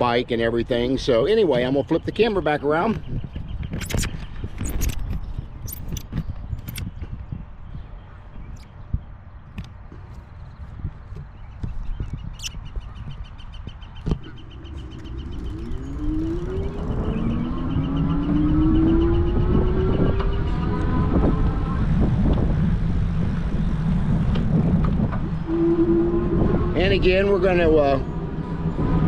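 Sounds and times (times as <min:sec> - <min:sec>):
wind on microphone: 0:01.2 - 0:29.0
electric motor whine: 0:14.1 - 0:18.4.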